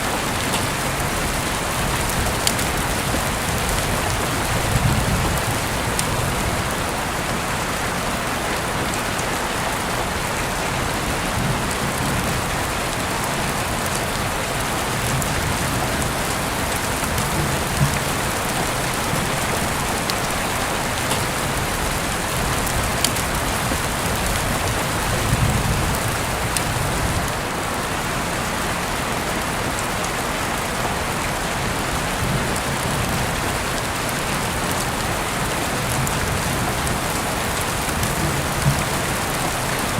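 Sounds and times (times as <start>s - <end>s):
heavy rain falling: 0.0s - 39.9s
raindrop ticks: 0.1s - 6.8s, 11.4s - 27.4s, 35.7s - 39.9s.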